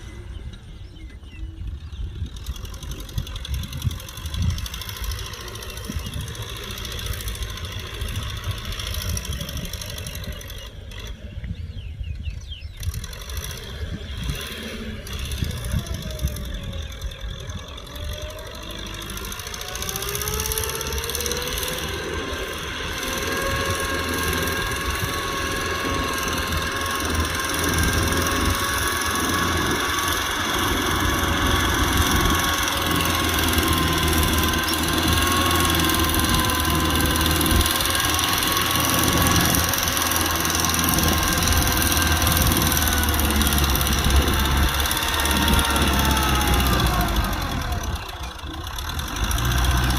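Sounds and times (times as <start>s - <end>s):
rising whine: 0.0s - 49.9s
tractor diesel engine running: 0.0s - 49.9s.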